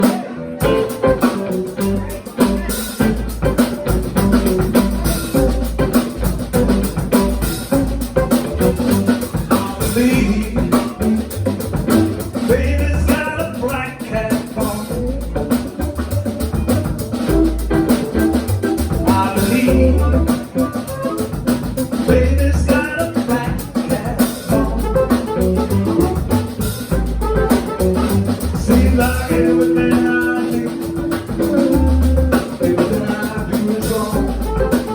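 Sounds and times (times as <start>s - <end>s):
person singing: 0.0s - 3.5s, 9.2s - 11.7s, 12.4s - 15.7s, 18.8s - 21.3s, 22.0s - 25.4s, 27.4s - 34.9s
live band playing: 0.0s - 34.9s.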